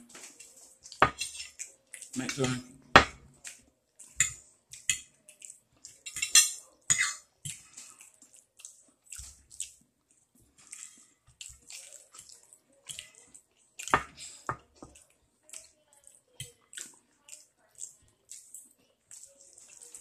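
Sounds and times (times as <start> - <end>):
wet chewing and lip-smacking: 3.4 - 6.0, 7.5 - 13.9, 14.9 - 20.0.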